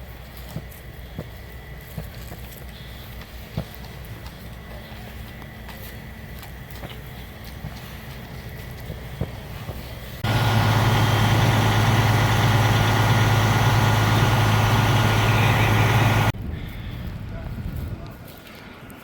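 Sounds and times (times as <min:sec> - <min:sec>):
heavy engine idling: 0:01.1 - 0:16.4.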